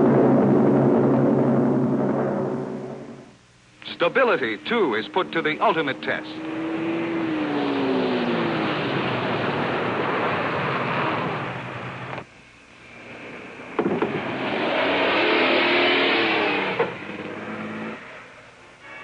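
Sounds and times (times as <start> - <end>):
car engine passing at speed: 4.4 - 12.2, 12.9 - 18.6.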